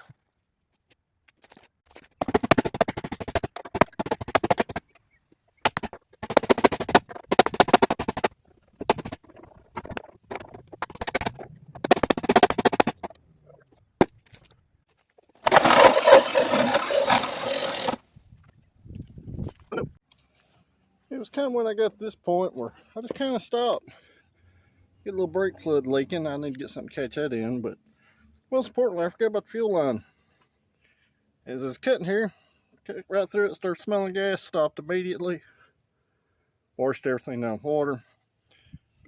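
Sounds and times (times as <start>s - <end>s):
reciprocating saw cutting steel: 15.5s - 18.0s.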